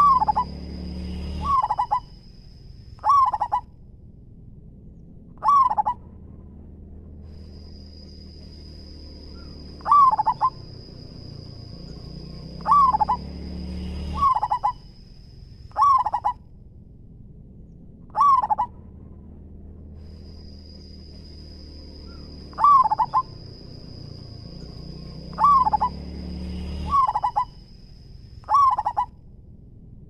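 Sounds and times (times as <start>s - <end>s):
dove cooing: 0.0s - 0.6s, 1.3s - 2.2s, 3.0s - 3.6s, 5.4s - 6.0s, 9.4s - 10.9s, 12.6s - 13.3s, 14.2s - 14.8s, 15.7s - 16.4s, 18.1s - 18.7s, 22.1s - 23.6s, 25.3s - 26.0s, 26.9s - 27.6s, 28.5s - 29.1s
low rumble: 0.0s - 30.0s.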